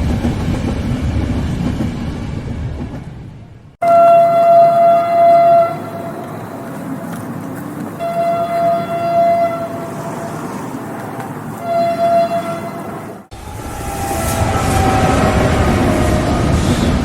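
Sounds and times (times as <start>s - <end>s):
train rumble: 0.0s - 17.0s
train horn blasts: 3.8s - 6.2s, 8.0s - 9.8s, 11.6s - 16.8s.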